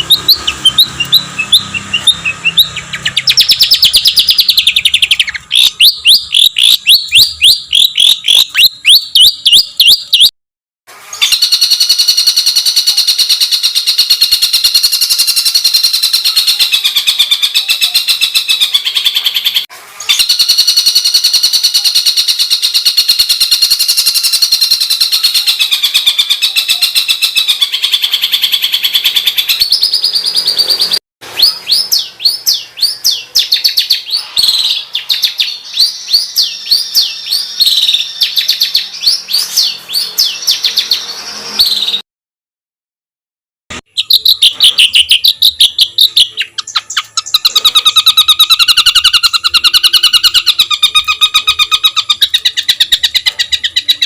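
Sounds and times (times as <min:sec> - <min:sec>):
buzzy bird trill: 0:00.0 - 0:10.3, 0:11.2 - 0:42.0, 0:43.9 - 0:54.0
songbird chirping: 0:00.0 - 0:10.3, 0:43.9 - 0:54.0.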